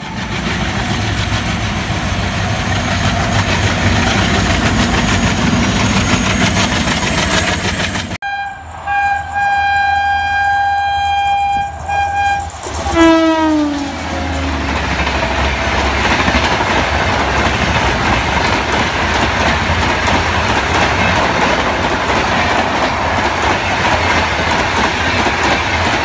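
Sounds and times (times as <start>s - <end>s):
diesel locomotives rumbling: 0.0s - 26.0s
train horn blast: 8.2s - 15.8s.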